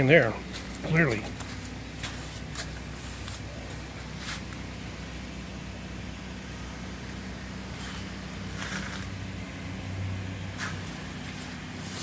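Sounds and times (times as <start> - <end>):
low mechanical hum: 0.0 - 12.0
brief scuffing noises: 10.6 - 12.0.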